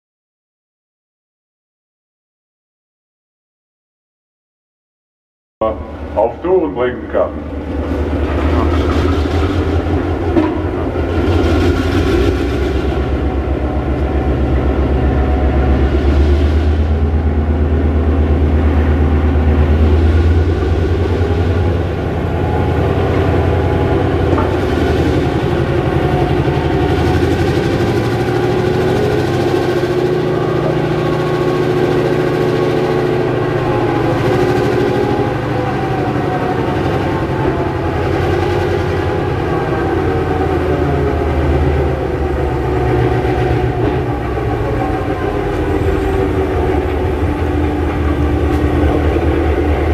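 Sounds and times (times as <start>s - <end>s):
diesel locomotive engine running: 5.6s - 49.9s.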